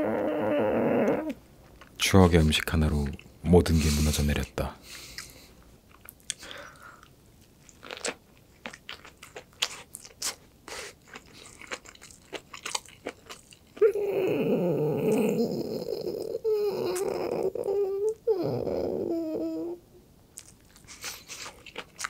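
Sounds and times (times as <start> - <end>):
man chewing crunchy food: 4.9 - 14.0, 20.3 - 22.0.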